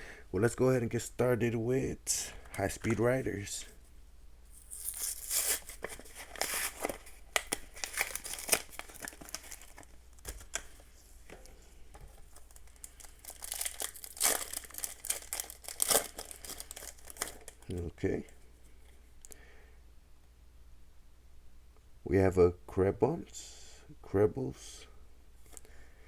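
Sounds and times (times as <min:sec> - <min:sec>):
foil pack crinkling and tearing: 0:04.6 - 0:10.8, 0:12.1 - 0:17.8.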